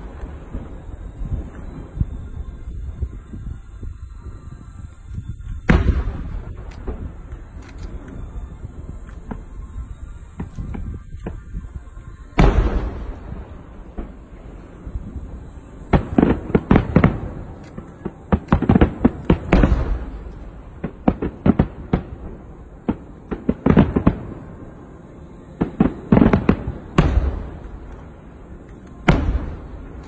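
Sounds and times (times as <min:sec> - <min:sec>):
fireworks bangs: 0:00.0 - 0:30.0.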